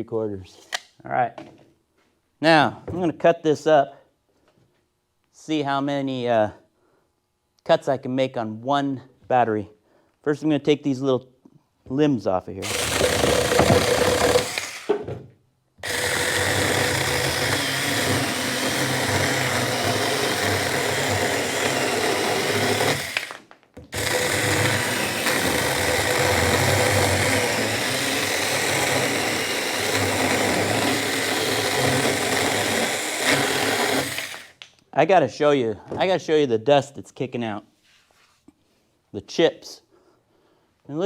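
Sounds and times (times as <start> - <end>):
electric chainsaw cutting limbs: 12.6 - 15.0, 15.8 - 34.6.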